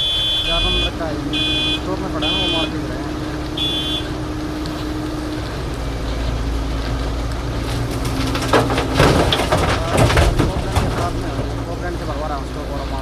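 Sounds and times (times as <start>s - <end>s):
electronic warning beep: 0.0s - 2.7s, 3.6s - 4.1s
diesel engine running: 0.0s - 13.0s
knocks and clatter: 5.5s - 13.0s.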